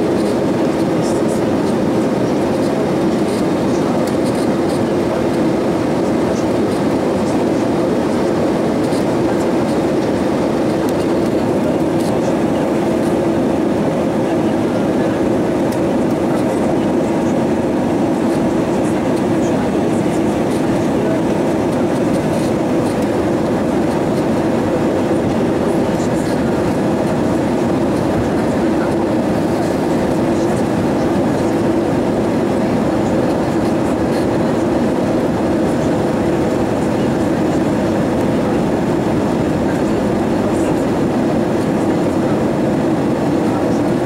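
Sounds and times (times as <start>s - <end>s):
airplane cabin engine drone: 0.0s - 44.0s.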